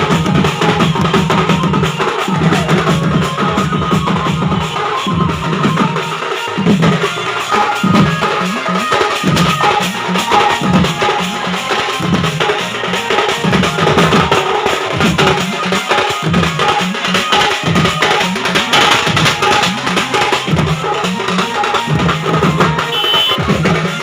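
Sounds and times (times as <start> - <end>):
band playing drum-led music: 0.0 - 24.0
sharp percussion hits: 6.6 - 23.8.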